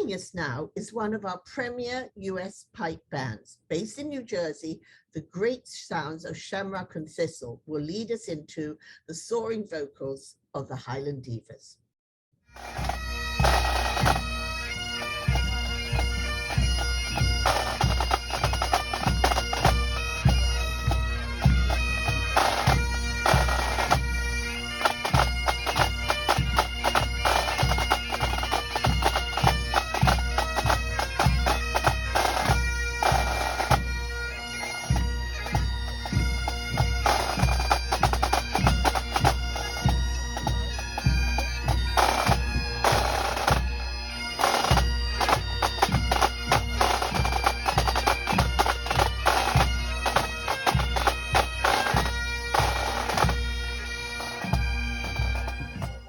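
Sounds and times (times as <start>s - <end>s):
bagpipes playing melody: 12.5s - 56.0s
drums beating: 12.6s - 33.9s, 34.6s - 43.8s, 44.4s - 56.0s.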